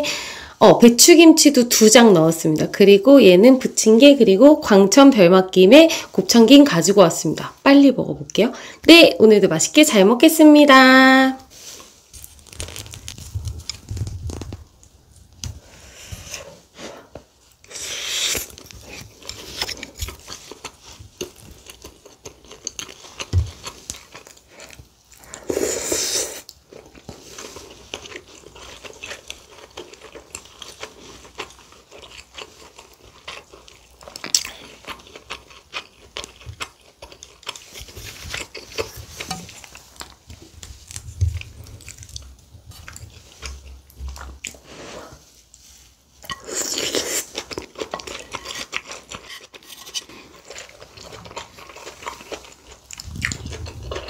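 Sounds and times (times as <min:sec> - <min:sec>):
person chewing and biting food: 0:17.6 - 0:44.7, 0:46.2 - 0:54.0.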